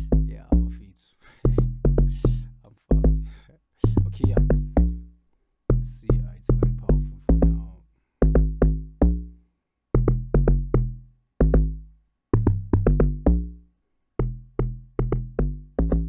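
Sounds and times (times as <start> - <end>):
distorted synth bass drum: 1.5 - 3.2, 3.8 - 5.0, 12.4 - 13.5, 14.2 - 16.0.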